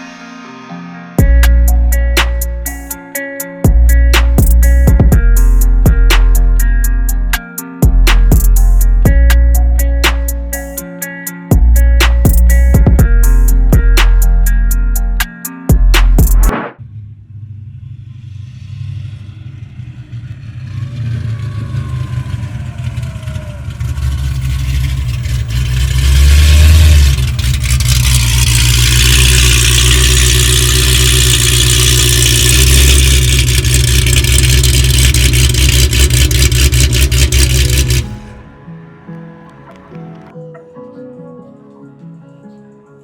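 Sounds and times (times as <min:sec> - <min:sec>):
car engine revving hard: 0:19.2 - 0:38.4.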